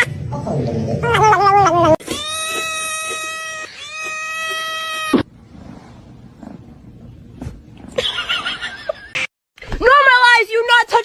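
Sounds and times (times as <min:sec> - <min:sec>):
cat meowing: 0:01.1 - 0:05.3.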